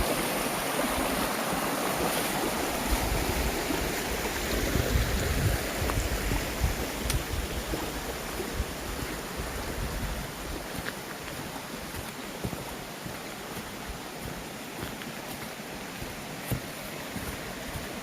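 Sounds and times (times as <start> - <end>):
stream rushing: 0.0 - 18.0
wind rumble on microphone: 2.4 - 10.9.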